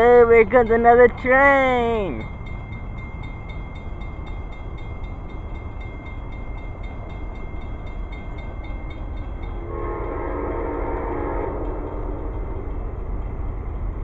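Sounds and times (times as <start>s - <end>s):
train rumbling: 0.0s - 14.0s
train horn chord: 9.6s - 12.6s.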